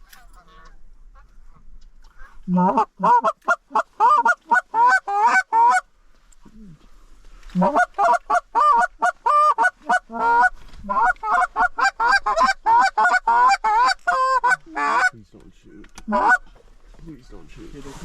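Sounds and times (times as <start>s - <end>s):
goose honking: 0.1s - 5.8s, 7.6s - 15.2s, 16.0s - 16.5s.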